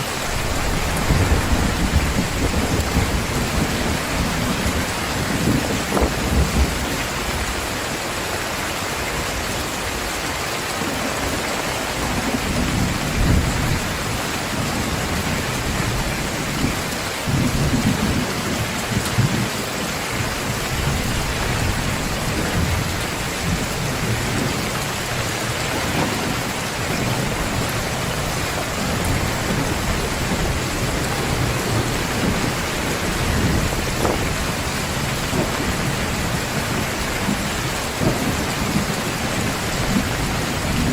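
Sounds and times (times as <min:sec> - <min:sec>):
low thunder rumbling: 0:00.0 - 0:07.7, 0:10.8 - 0:40.9
heavy rain pouring: 0:00.0 - 0:40.9.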